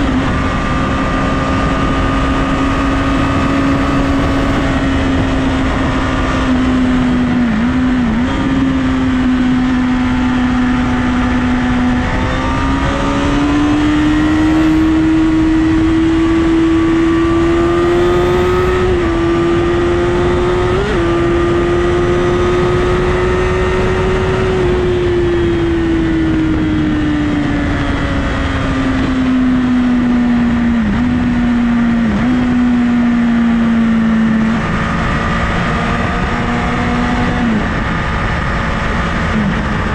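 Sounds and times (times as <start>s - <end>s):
heavy wind rush: 0.0s - 39.9s
motorcycle engine running: 0.0s - 39.9s.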